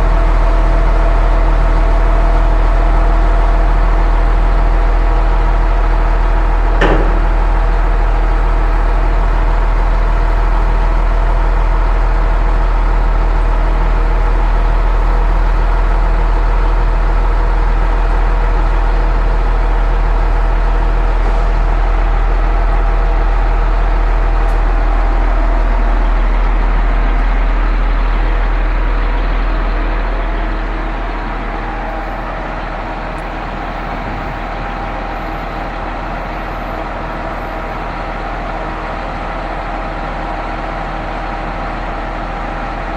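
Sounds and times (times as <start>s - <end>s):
pump engine running: 0.0s - 42.9s
sharp metallic knock: 6.8s - 7.7s.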